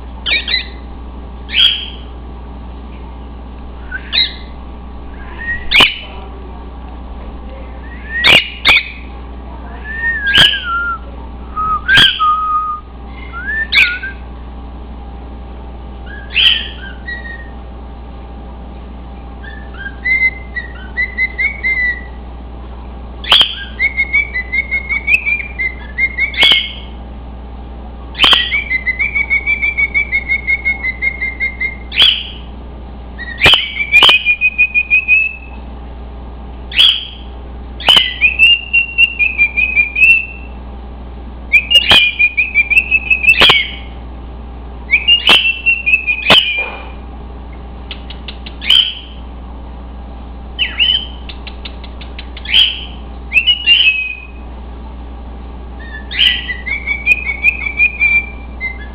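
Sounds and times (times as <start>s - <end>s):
cockatiel whistling and chirping: 0.2s - 0.8s, 1.5s - 2.0s, 3.9s - 4.5s, 5.2s - 6.0s, 7.9s - 9.1s, 10.0s - 11.0s, 11.6s - 14.2s, 16.0s - 17.5s, 19.4s - 22.2s, 23.2s - 26.9s, 28.2s - 32.5s, 33.2s - 35.6s, 36.7s - 40.6s, 41.5s - 43.9s, 44.9s - 46.8s, 48.6s - 49.2s, 50.6s - 51.3s, 52.3s - 54.4s, 55.8s - 58.9s.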